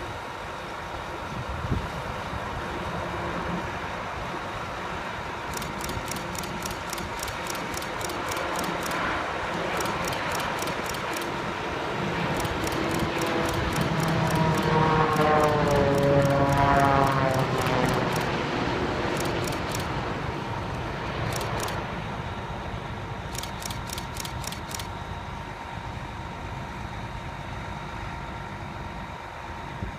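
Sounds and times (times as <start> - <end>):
jet engines whining: 0.0 - 29.7
rapid high clicks: 5.5 - 11.4, 12.2 - 18.4, 19.1 - 19.9, 21.2 - 21.8, 23.3 - 24.9.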